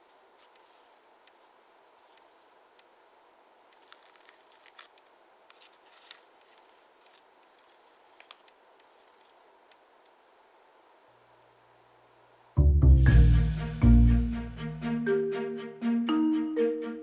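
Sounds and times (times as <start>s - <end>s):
paper rustling: 0.0s - 2.3s, 3.7s - 9.8s
steady hiss: 0.0s - 14.7s.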